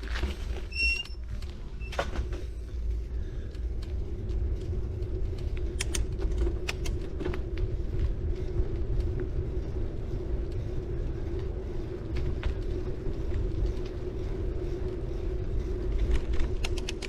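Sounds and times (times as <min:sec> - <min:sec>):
bike ticks and clicks: 0:00.0 - 0:17.0
bike tyres rumbling on road: 0:00.0 - 0:17.0
faint constant hum: 0:00.0 - 0:17.0
brake squeal: 0:00.5 - 0:02.5.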